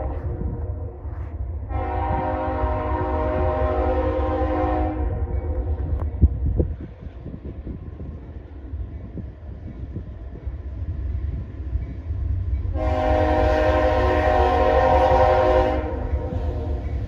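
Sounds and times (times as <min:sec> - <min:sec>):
low rumble of train: 0:00.0 - 0:17.0
locomotive air horn blast: 0:01.7 - 0:05.3, 0:12.8 - 0:16.8.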